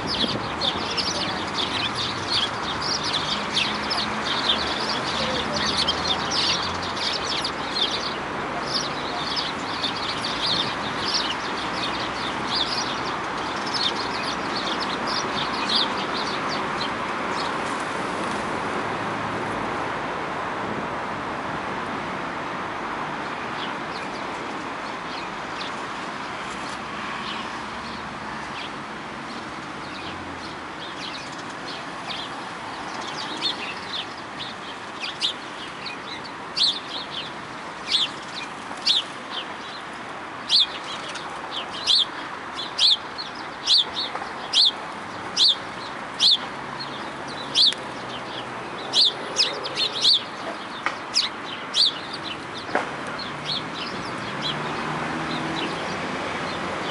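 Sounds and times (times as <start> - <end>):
bird chirping: 30.9 - 55.9.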